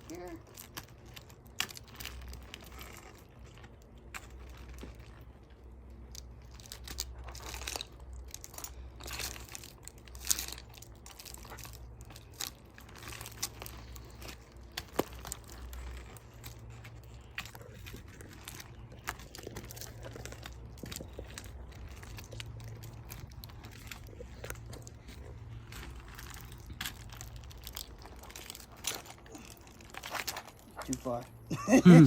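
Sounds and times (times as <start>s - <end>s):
low rumble: 12.0s - 31.5s.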